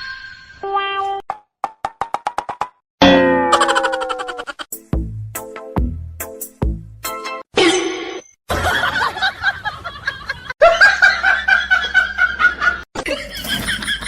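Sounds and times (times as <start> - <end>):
person snickering and laughing: 3.5 - 4.7, 12.6 - 14.0.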